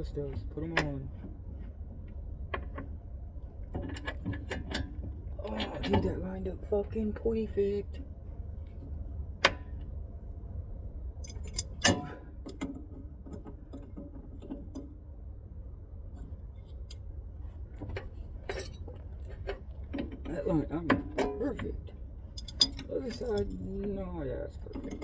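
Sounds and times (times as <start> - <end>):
low steady rumble: 0.0 - 25.0
metal tools clinking: 11.2 - 12.2, 18.5 - 24.0.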